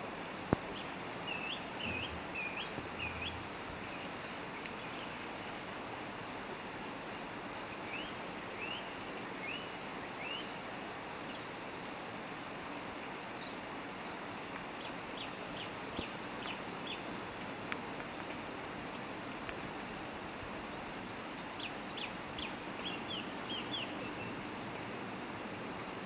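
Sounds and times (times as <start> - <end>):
rain hissing: 0.0 - 6.8
songbird chirping: 0.4 - 6.3, 20.7 - 25.0.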